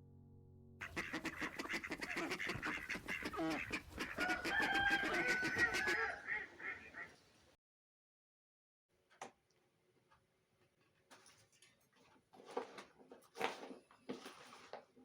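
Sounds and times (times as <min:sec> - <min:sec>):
chickens calling: 0:00.8 - 0:07.3.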